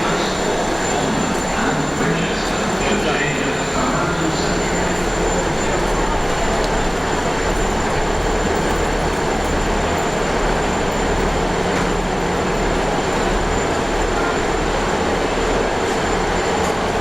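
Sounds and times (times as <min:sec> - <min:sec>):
faint high whine: 0:00.0 - 0:07.0
train rumbling inside carriage: 0:00.0 - 0:17.0.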